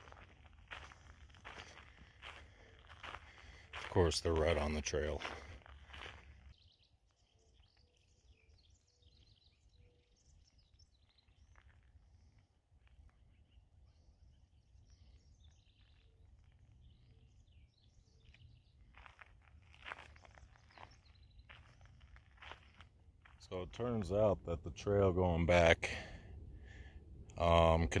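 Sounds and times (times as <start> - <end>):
faint bird chirps and calls: 0.0 - 24.0.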